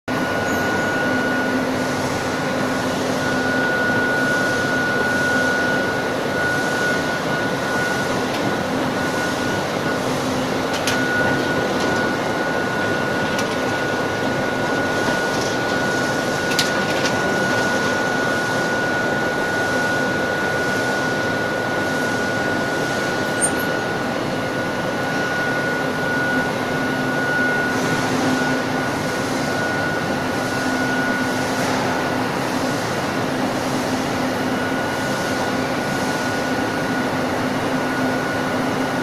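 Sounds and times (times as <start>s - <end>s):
furnace machine rushing: 0.1s - 38.9s.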